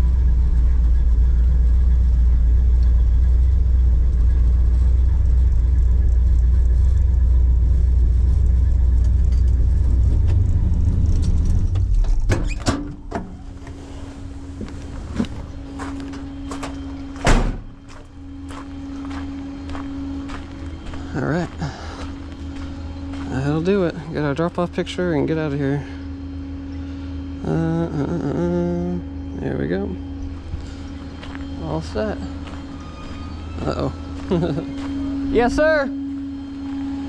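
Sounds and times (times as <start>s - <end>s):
car engine idling: 0.0s - 37.0s
car door shutting: 16.1s - 17.7s.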